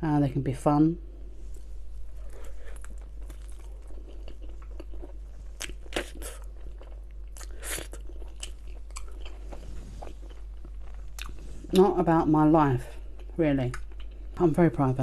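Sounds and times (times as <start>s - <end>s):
person chewing and biting: 1.6s - 11.8s.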